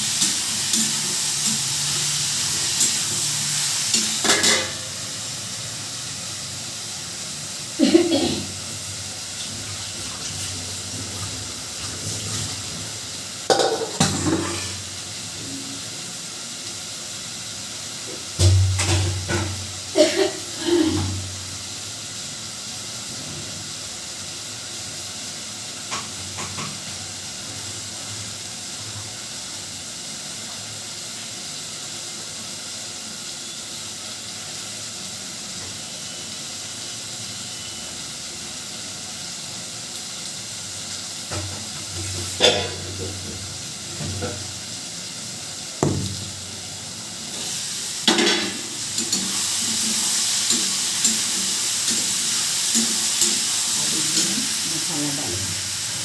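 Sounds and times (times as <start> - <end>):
steam hissing and sizzling: 0.0 - 56.0
metal pots and utensils clattering: 2.6 - 5.0, 13.5 - 14.8, 18.4 - 21.2, 41.3 - 43.4, 48.0 - 52.1.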